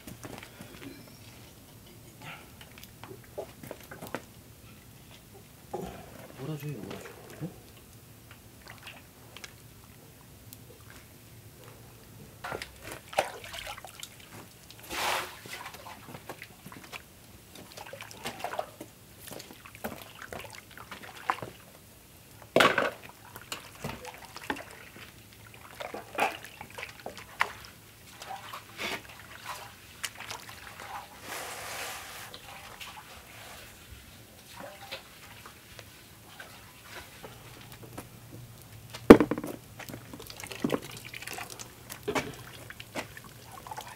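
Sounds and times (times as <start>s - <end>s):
liquid sloshing and pouring: 12.4s - 21.6s, 22.5s - 35.6s, 39.1s - 43.9s
small handling knocks: 39.1s - 40.0s.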